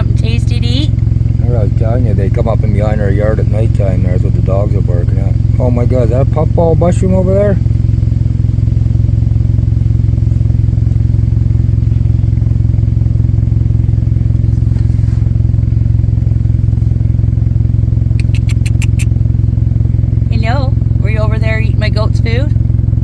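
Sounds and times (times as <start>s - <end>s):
engine idling: 0.0s - 23.0s
high clicks: 18.2s - 19.1s.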